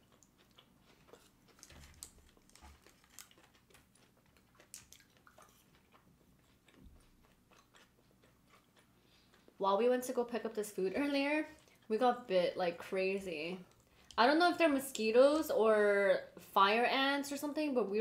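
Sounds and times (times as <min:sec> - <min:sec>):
people chewing food: 0:00.0 - 0:09.6, 0:10.9 - 0:12.0, 0:13.6 - 0:15.6.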